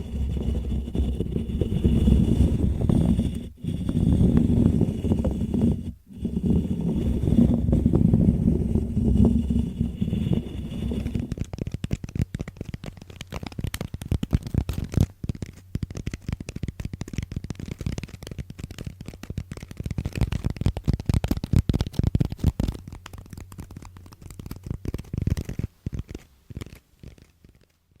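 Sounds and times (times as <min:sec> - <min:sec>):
low rumbling rub: 0:00.0 - 0:11.5
crackling and tapping: 0:00.0 - 0:28.0.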